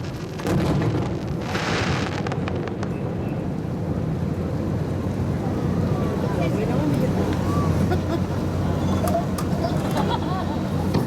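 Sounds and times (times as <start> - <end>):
fireworks crackling hiss: 0.0 - 2.8
firework boom: 0.0 - 3.2.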